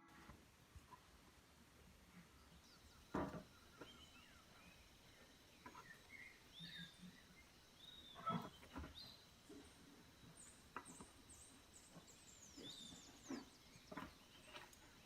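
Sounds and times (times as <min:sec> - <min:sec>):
faint birdsong chirps: 0:00.1 - 0:15.0
crackling or knocking sounds: 0:03.1 - 0:03.9.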